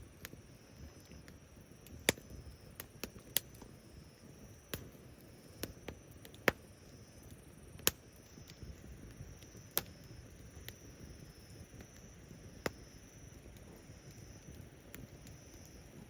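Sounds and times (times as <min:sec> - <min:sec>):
low rumble of burning: 0:00.0 - 0:16.0
wood fire crackling: 0:00.0 - 0:16.0.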